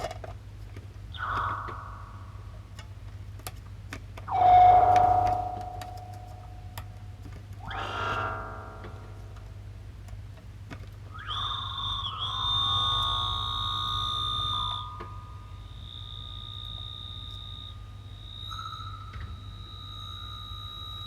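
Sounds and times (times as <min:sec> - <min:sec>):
steady low hum: 0:00.3 - 0:21.0
high-pitched electronic squealing: 0:01.2 - 0:02.8, 0:04.3 - 0:06.9, 0:07.6 - 0:09.7, 0:11.2 - 0:15.0.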